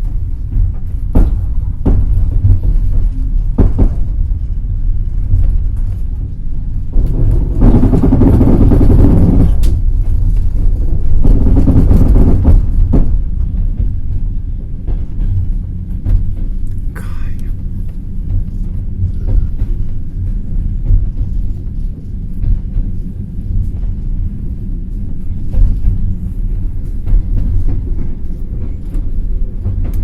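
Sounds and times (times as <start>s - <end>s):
wheels clacking over rail joints: 0.0s - 16.9s, 17.9s - 30.0s
train wheels rumbling: 0.0s - 30.0s.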